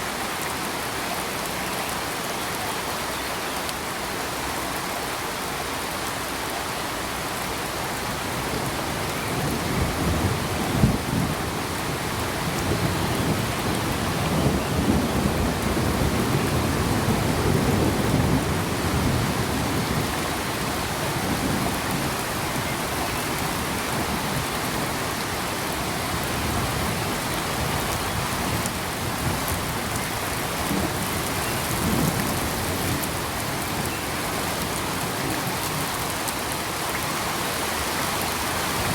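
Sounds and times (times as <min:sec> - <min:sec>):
steady rain falling: 0:00.0 - 0:38.9
low rolling thunder: 0:09.3 - 0:25.1.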